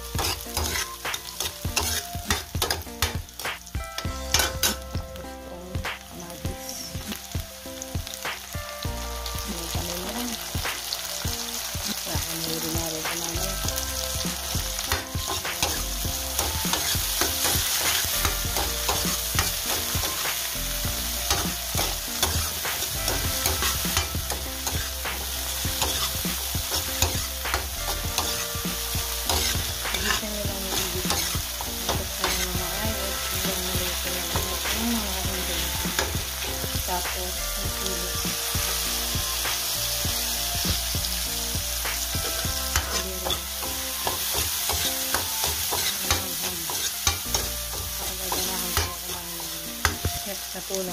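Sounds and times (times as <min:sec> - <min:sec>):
metal ladle scraping pan: 0:00.0 - 0:03.2
vegetables sizzling in oil: 0:00.0 - 0:50.9.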